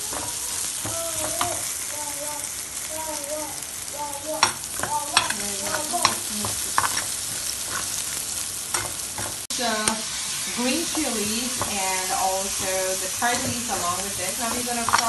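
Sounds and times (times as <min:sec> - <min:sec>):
onions sizzling in a frying pan: 0:00.0 - 0:15.0
ladle scraping a pan: 0:05.2 - 0:09.5.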